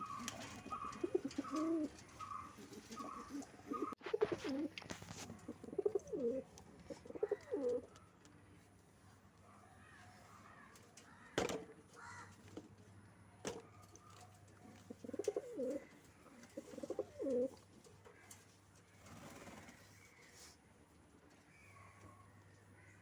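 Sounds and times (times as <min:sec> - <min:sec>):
pigeons cooing: 0:00.0 - 0:07.9, 0:14.9 - 0:17.6.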